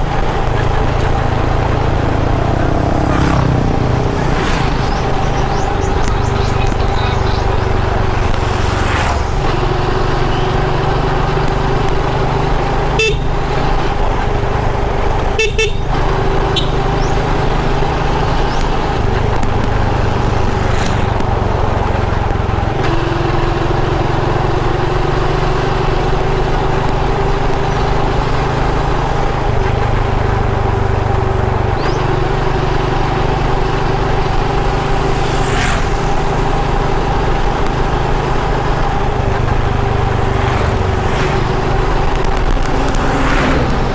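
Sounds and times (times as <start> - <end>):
rushing wind noise: 0.0 - 12.7, 30.4 - 43.9
motorbike engine cruising: 0.0 - 43.9.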